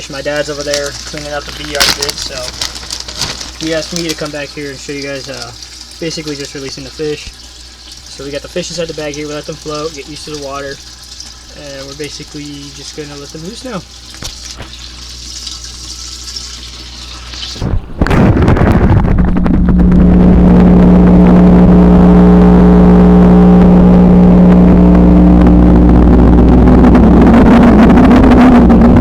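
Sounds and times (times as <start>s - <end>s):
pouring water hiss: 0.0s - 18.1s
motor humming: 0.0s - 29.0s.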